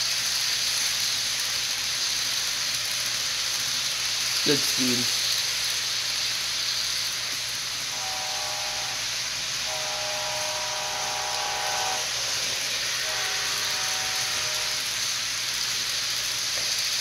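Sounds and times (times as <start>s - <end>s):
steady locomotive hiss: 0.0s - 17.0s
multi-chime air horn blasts: 7.9s - 15.0s.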